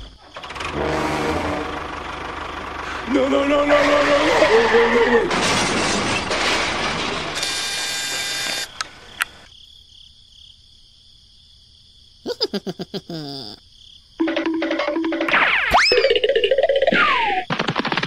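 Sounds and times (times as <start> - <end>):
clattering crash noise: 5.3 - 7.4.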